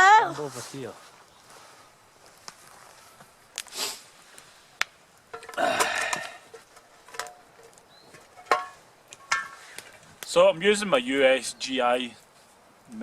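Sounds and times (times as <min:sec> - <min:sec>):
cooking gear clicks and knocks: 0:05.3 - 0:09.6.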